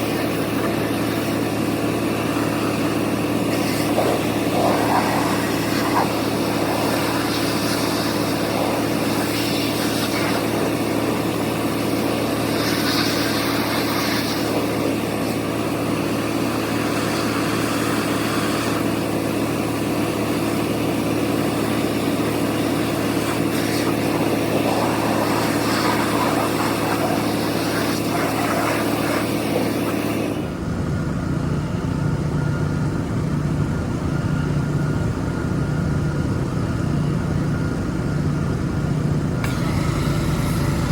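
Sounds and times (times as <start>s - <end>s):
pressure washer running: 0.0s - 40.9s
pressure washer spray hissing: 3.5s - 14.8s.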